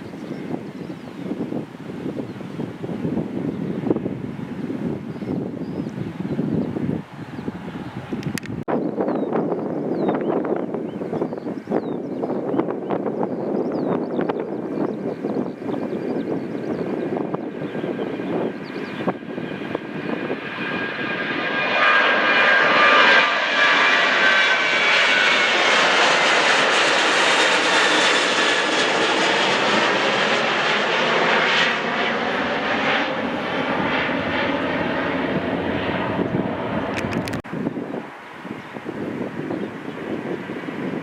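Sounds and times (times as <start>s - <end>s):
airliner engines roaring: 0.0s - 41.0s.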